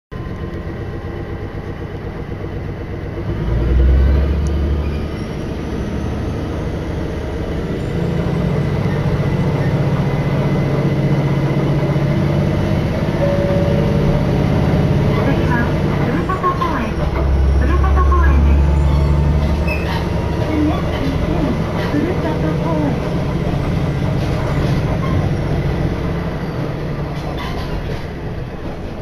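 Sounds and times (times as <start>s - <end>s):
diesel railcar engine: 0.1s - 29.0s
rising whine: 3.9s - 16.5s.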